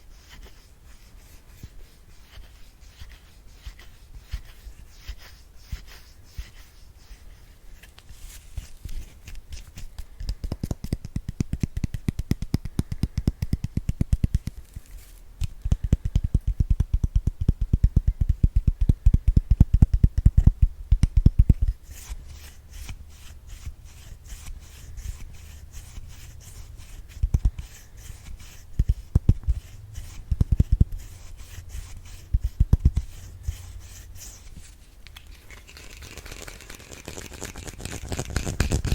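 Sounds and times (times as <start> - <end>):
brush scratching microphone: 0.0 - 9.4, 21.3 - 38.9.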